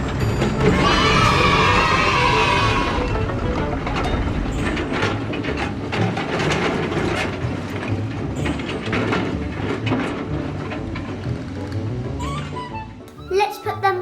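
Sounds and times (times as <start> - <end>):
low hum: 0.0 - 10.2
plastic toys clicking and rattling: 0.0 - 12.5.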